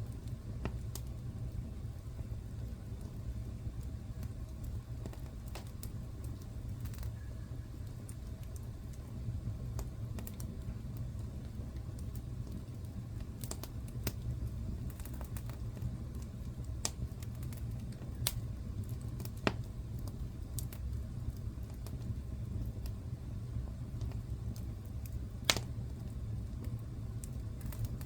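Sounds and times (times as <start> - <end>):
low rumble of burning fire: 0.0 - 28.0
wood fire crackling and popping: 0.0 - 28.0.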